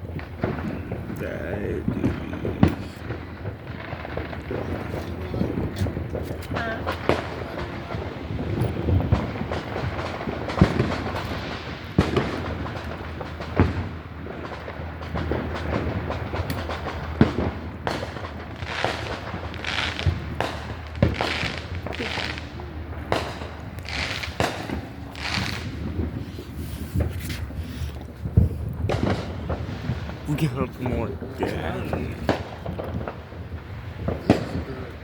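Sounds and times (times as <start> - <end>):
fireworks popping and banging: 0.0 - 35.0
fireworks hissing bursts: 0.4 - 3.5, 18.6 - 35.0.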